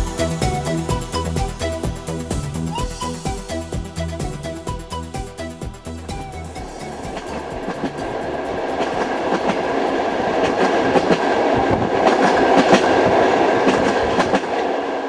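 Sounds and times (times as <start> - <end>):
train rumbling over rails: 0.0 - 15.0
wheel clacks on rail joints: 7.1 - 14.7.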